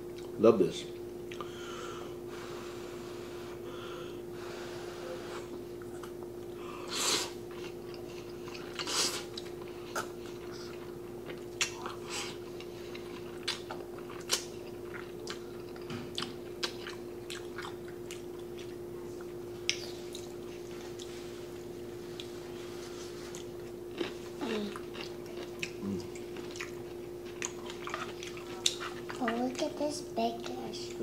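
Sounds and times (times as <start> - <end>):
wet chewing: 7.5 - 21.1, 23.3 - 29.7.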